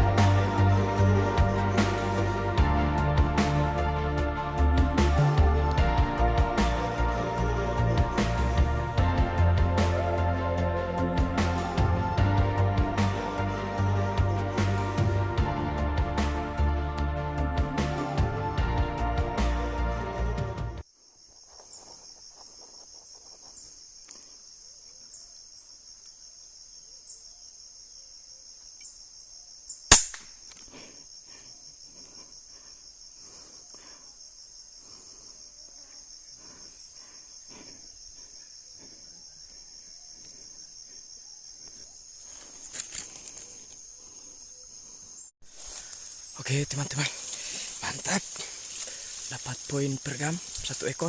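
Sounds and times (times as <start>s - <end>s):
air rifle firing: 29.9s - 30.3s
high-pitched insect drone: 31.0s - 51.0s.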